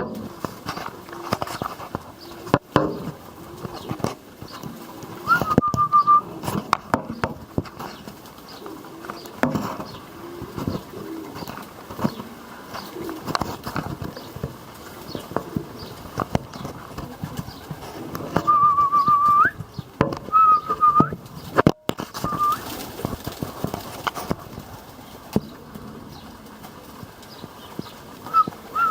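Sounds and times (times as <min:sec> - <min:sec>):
pigeons cooing: 0:00.0 - 0:28.9
high wavering whistle-like calls: 0:05.2 - 0:06.4, 0:18.4 - 0:19.6, 0:20.3 - 0:21.2, 0:22.2 - 0:22.8, 0:28.2 - 0:28.9
clicks and knocks: 0:18.1 - 0:20.3.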